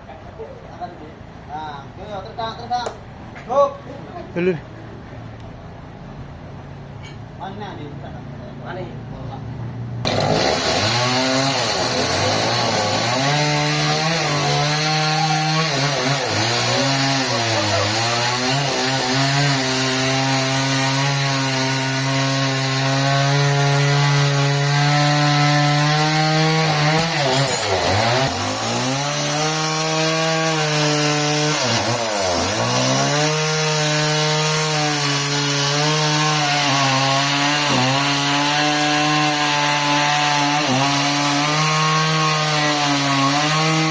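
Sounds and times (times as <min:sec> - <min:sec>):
chainsaw cutting a log: 0:10.0 - 0:43.9.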